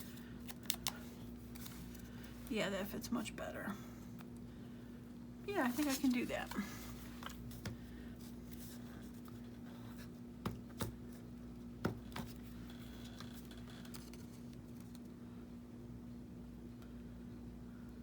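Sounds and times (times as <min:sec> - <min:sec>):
steady low hum: 0:00.0 - 0:18.0
paper rustling and scraping: 0:05.5 - 0:07.6.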